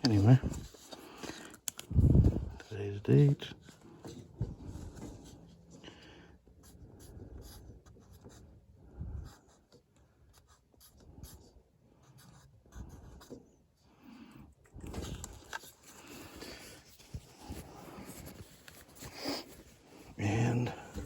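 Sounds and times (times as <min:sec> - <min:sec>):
marker scratching: 0:06.6 - 0:08.4, 0:09.2 - 0:13.5.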